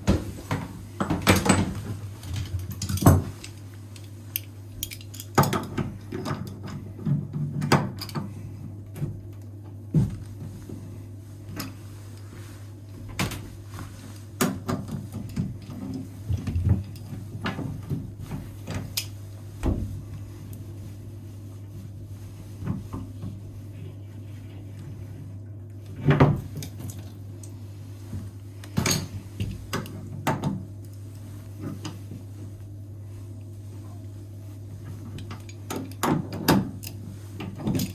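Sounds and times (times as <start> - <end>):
steady low hum: 0.0 - 37.9
tools knocking and clattering: 0.1 - 3.6, 4.8 - 8.3.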